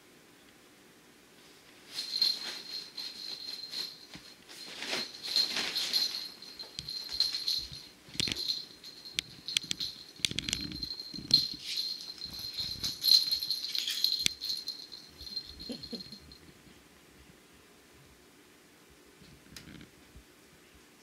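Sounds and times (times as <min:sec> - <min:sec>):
small bell jingling: 0:01.9 - 0:16.4
rattling and little knocks: 0:02.0 - 0:15.5.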